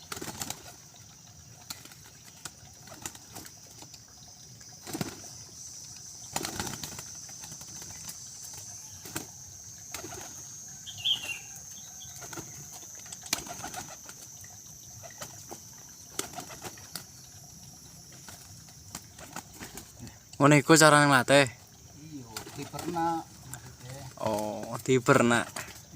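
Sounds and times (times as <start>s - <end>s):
pigeon wings flapping: 0.0s - 0.8s, 2.8s - 3.6s, 4.8s - 5.3s, 6.3s - 10.5s, 12.2s - 14.3s, 15.0s - 17.1s, 18.1s - 20.0s, 22.3s - 23.2s.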